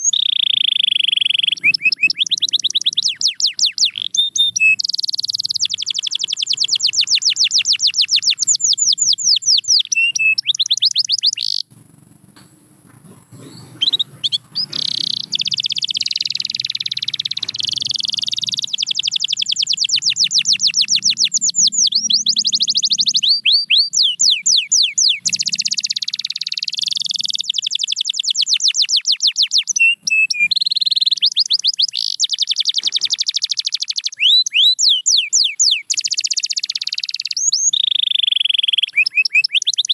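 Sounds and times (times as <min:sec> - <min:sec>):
canary singing trills and warbles: 0:00.0 - 0:39.9.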